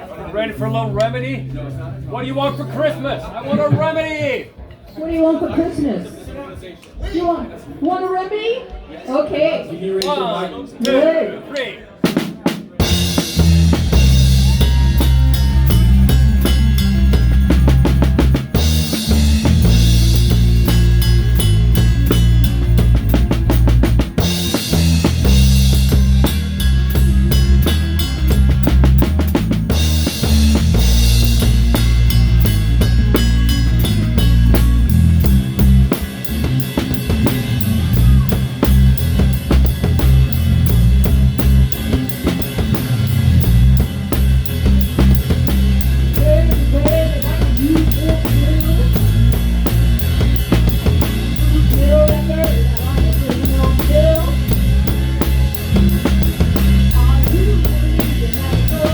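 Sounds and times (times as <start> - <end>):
live rock band playing: 0.0 - 4.0, 12.0 - 58.9
cymbal crashes: 12.8 - 46.2.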